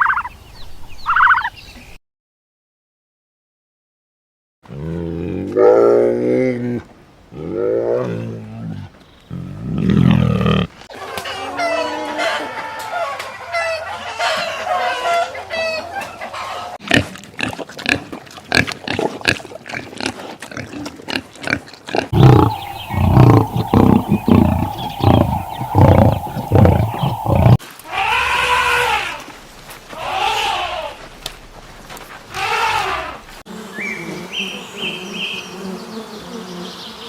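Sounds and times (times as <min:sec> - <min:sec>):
farm animal calls: 0:00.0 - 0:00.4, 0:01.0 - 0:01.6, 0:22.1 - 0:29.2
low animal grunts: 0:04.7 - 0:10.8, 0:21.5 - 0:27.6.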